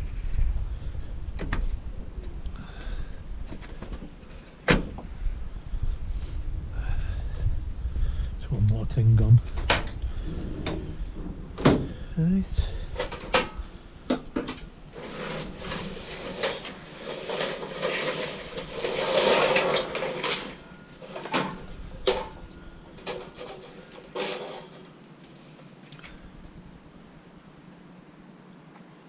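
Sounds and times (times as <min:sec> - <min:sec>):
metal rattling and scraping: 0:09.6 - 0:25.0
scrap metal clanking: 0:09.7 - 0:25.0.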